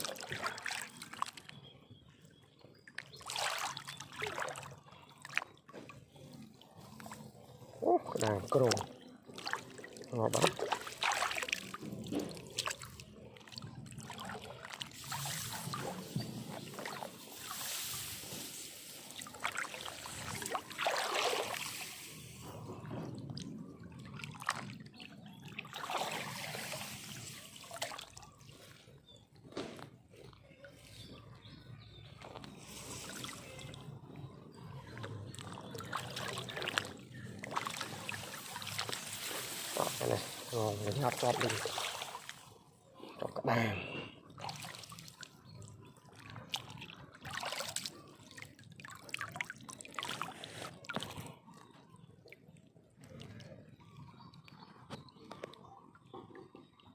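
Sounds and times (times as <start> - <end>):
water trickling and splashing: 0.0 - 56.9.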